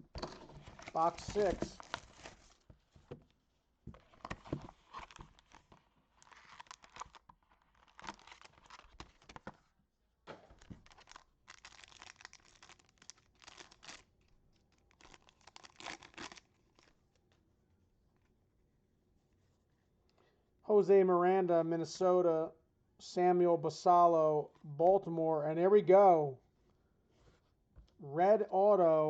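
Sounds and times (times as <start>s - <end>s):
packaging torn and crinkled: 4.8s - 9.4s, 10.6s - 17.0s.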